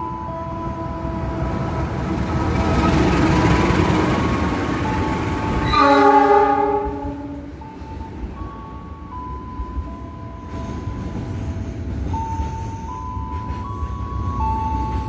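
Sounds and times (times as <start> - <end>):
train wheels rumbling on rail: 0.0 - 15.0
locomotive horn blast: 5.4 - 7.6.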